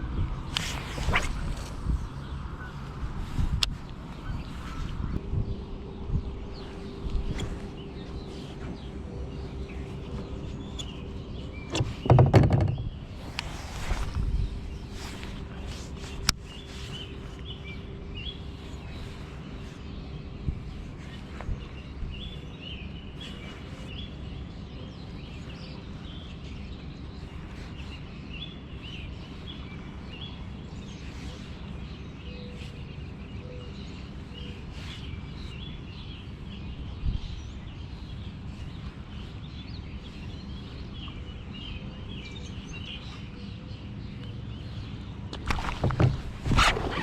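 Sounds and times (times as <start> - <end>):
low background rumble: 0.0 - 47.0
small birds chirping: 0.0 - 47.0
short thump: 11.7 - 13.0, 45.4 - 47.0.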